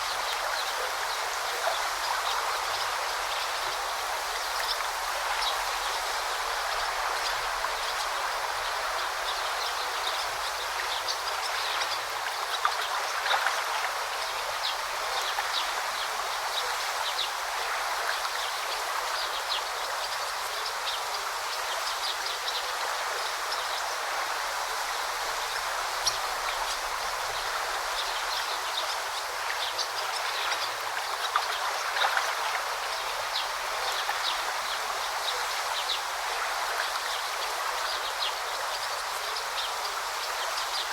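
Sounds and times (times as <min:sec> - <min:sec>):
brook water flowing: 0:00.0 - 0:40.9
small water splashes: 0:26.0 - 0:39.7.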